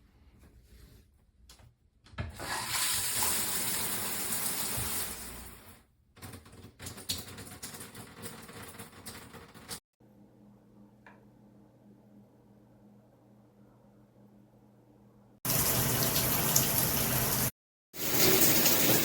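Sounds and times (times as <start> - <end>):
shower spraying water: 2.4 - 5.8, 15.5 - 19.0.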